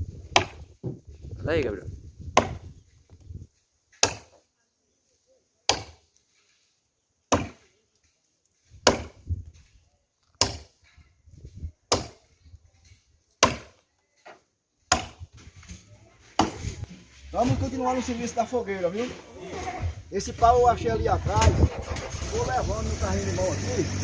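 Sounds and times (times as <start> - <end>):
wood being chopped: 0.3 - 1.0, 2.3 - 2.7, 3.9 - 4.4, 5.7 - 6.0, 7.3 - 7.6, 8.8 - 9.3, 10.3 - 10.8, 11.9 - 12.2, 13.4 - 13.8, 14.9 - 15.2, 16.4 - 16.7.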